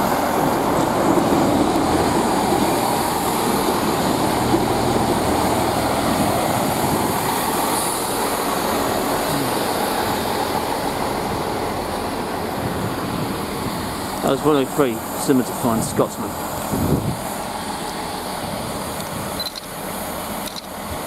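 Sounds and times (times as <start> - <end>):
diesel train running past: 0.0 - 21.0.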